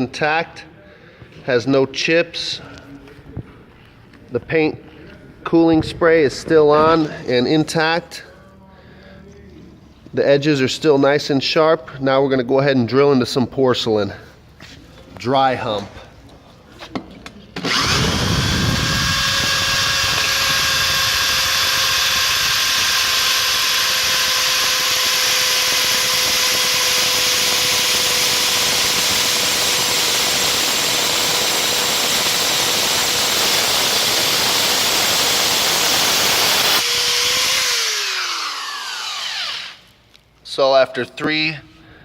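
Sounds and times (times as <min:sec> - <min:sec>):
power drill grinding through tile: 0:17.6 - 0:40.0.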